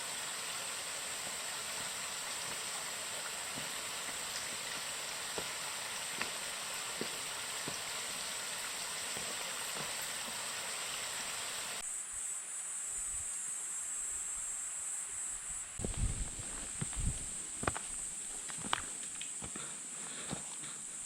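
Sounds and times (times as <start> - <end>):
insects droning: 0.0 - 21.0
rushing water hiss: 0.0 - 21.0
footsteps thudding: 15.8 - 20.7.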